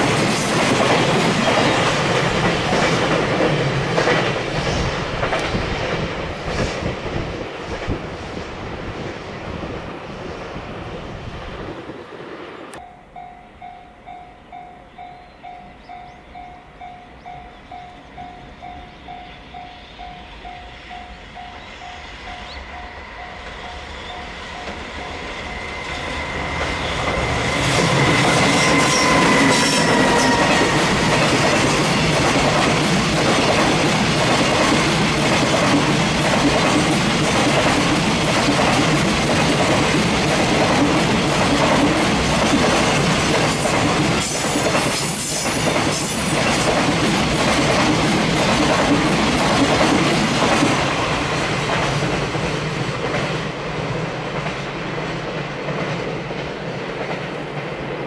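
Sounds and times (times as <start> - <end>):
freight train rumbling and clattering: 0.0 - 12.8, 22.4 - 58.0
locomotive whine: 10.6 - 35.3.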